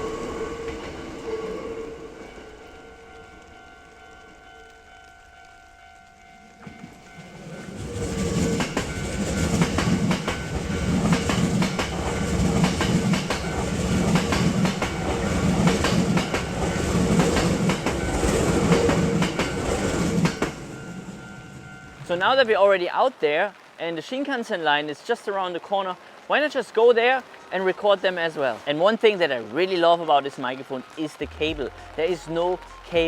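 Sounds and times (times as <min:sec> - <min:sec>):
train passing: 0:00.0 - 0:23.6, 0:24.6 - 0:33.0
train wheels clicking on rail joints: 0:06.5 - 0:21.7.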